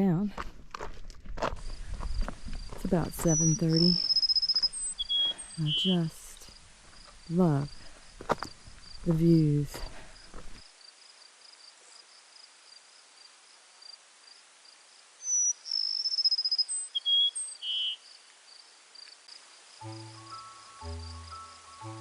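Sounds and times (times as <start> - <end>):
high insect chirping: 1.6 - 9.5, 10.1 - 22.0
bird singing whistled notes and trill: 3.0 - 6.2, 15.2 - 18.0, 19.8 - 22.0
soft music: 19.8 - 22.0.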